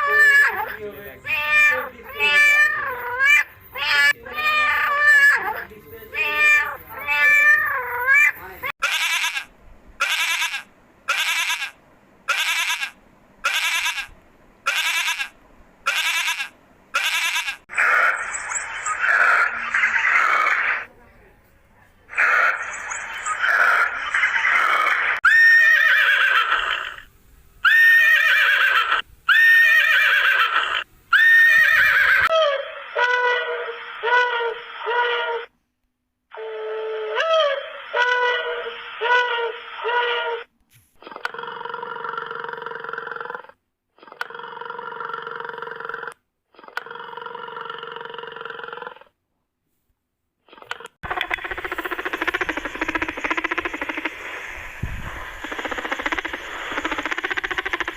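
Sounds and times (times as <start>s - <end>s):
sustained animal call: 0.0s - 20.9s, 22.1s - 35.5s, 36.3s - 49.1s, 50.6s - 57.9s
horse whinnying: 23.4s - 32.8s.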